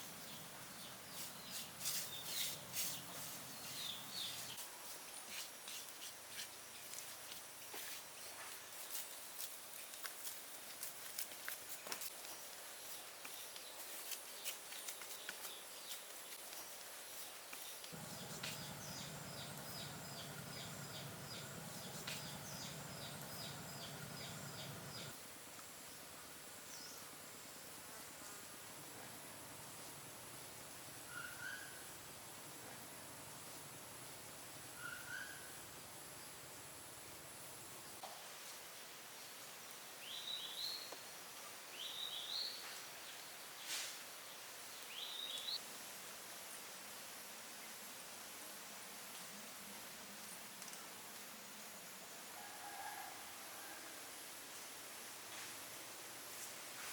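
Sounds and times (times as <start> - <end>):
faint outdoor hiss: 0.0 - 56.9
faint low steady hum: 17.9 - 31.2
bird call with rising notes: 18.0 - 25.1.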